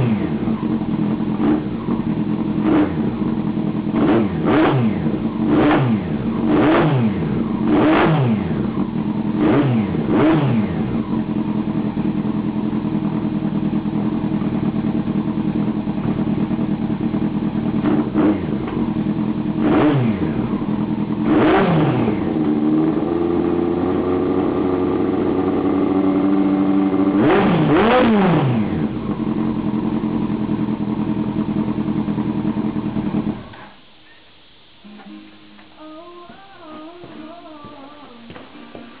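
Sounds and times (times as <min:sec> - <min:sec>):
motorcycle engine revving: 0:00.0 - 0:33.7.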